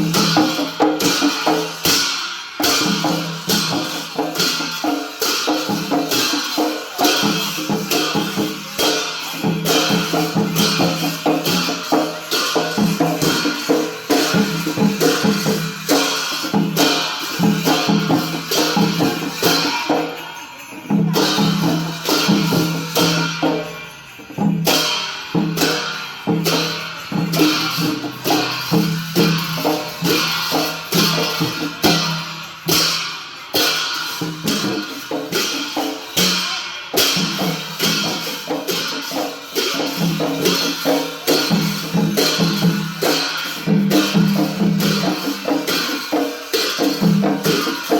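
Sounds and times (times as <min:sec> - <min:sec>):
fast drum strokes: 0:00.0 - 0:47.9
hand cymbals clashing: 0:00.0 - 0:47.9.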